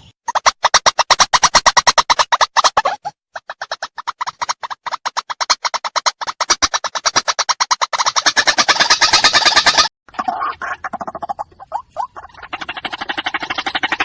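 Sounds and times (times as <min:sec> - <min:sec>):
waterhen calling harsh notes: 0:06.5 - 0:14.0.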